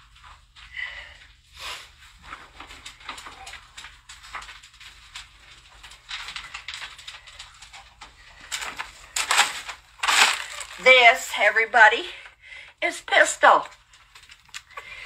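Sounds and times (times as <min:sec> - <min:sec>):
rustling: 0:00.0 - 0:11.5.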